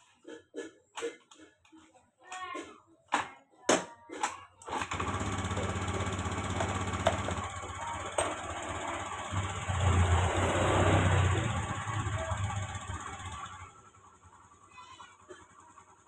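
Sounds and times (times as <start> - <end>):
engine idling: 4.9 - 16.0.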